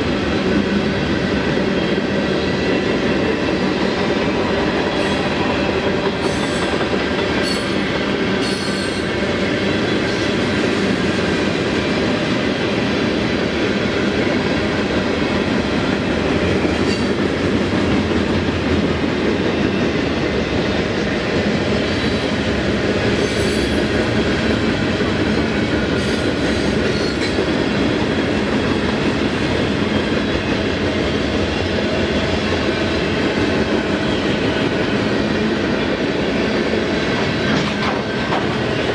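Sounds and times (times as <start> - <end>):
train wheels rumbling on track: 0.0 - 38.9.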